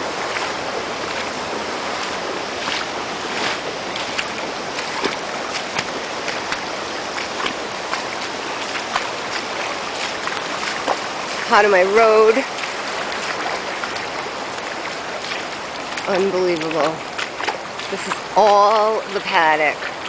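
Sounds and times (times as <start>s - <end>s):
floodwater rushing: 0.0s - 20.0s.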